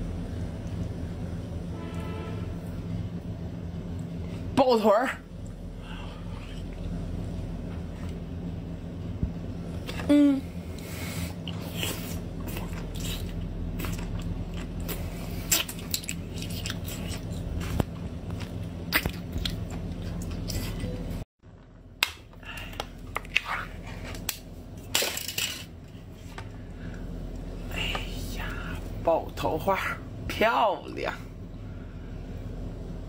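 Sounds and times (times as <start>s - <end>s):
steady low hum: 0.0s - 33.0s
person chewing: 5.4s - 8.2s, 10.7s - 21.0s.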